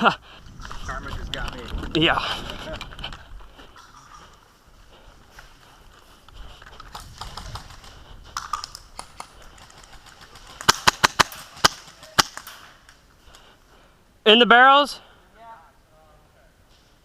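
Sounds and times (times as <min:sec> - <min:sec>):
airsoft gun shots: 0:10.6 - 0:12.5.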